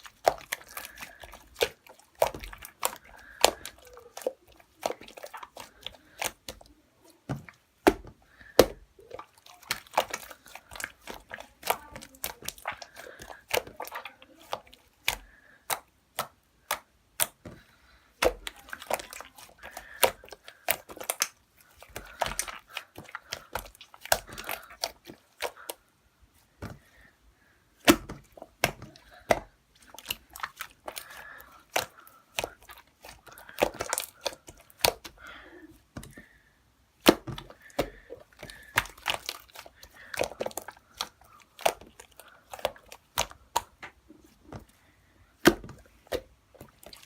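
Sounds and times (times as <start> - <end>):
slime clicking and popping: 0.0 - 17.6, 18.2 - 25.8, 37.0 - 44.6.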